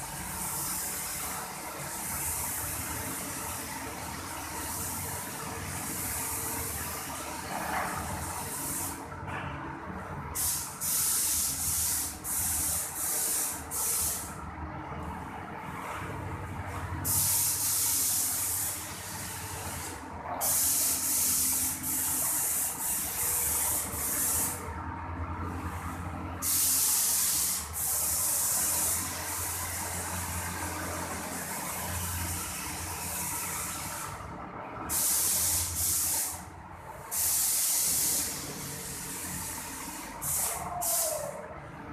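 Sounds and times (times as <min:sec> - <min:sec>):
paint sprayer gun hissing: 0:10.4 - 0:14.3, 0:17.0 - 0:24.6, 0:26.4 - 0:29.5, 0:34.9 - 0:36.4, 0:37.1 - 0:41.4.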